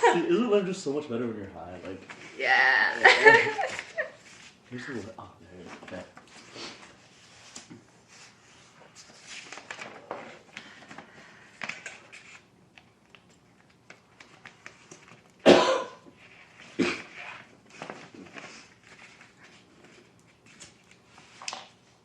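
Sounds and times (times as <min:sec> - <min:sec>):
rustling and handling noises: 0:01.2 - 0:22.0
person coughing: 0:15.4 - 0:16.0, 0:16.8 - 0:17.1.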